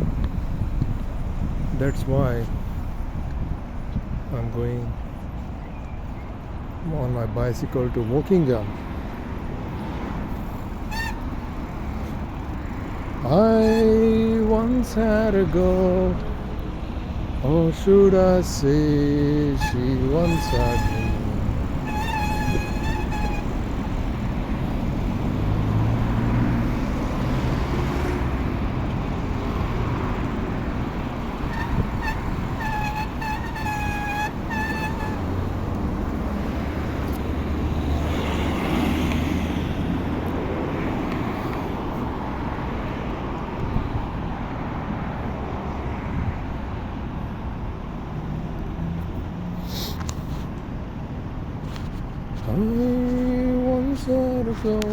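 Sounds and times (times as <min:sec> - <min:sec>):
wind rumble on microphone: 0:00.0 - 0:06.8, 0:08.6 - 0:45.4
road traffic noise: 0:00.0 - 0:54.9.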